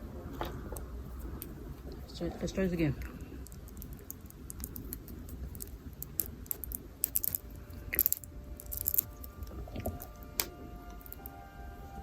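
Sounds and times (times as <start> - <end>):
low handling rumble: 0.0 - 12.0
plastic toy pieces clicking: 3.4 - 11.4.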